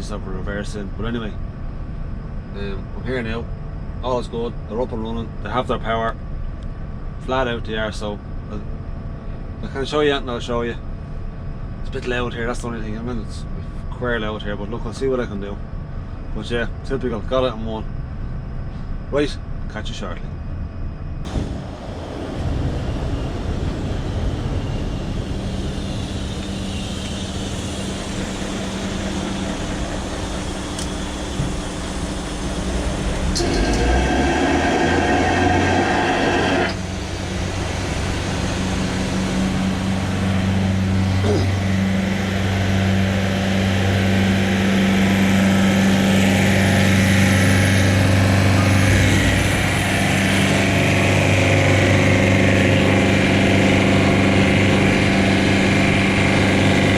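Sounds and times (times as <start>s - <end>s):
machinery humming: 0.0s - 56.9s
harsh loud machine noise: 21.3s - 56.9s.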